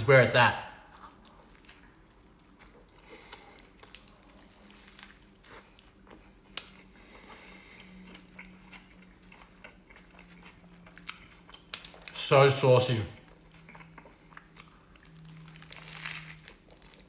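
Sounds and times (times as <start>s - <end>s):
person chewing with wet mouth smacks: 0.9s - 12.1s.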